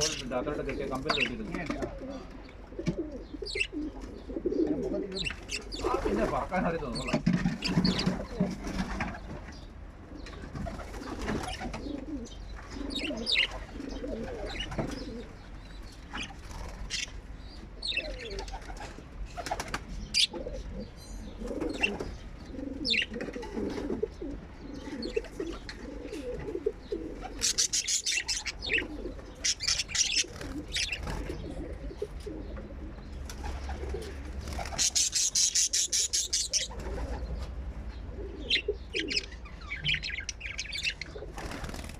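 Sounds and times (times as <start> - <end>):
birds cooing: 0.0 - 41.9
rapid wing flapping: 18.6 - 19.9, 33.3 - 35.1, 41.3 - 41.9.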